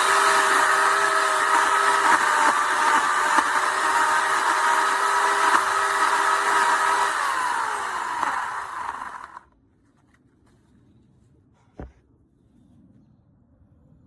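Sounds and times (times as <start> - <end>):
electric chainsaw whining: 0.0 - 9.5.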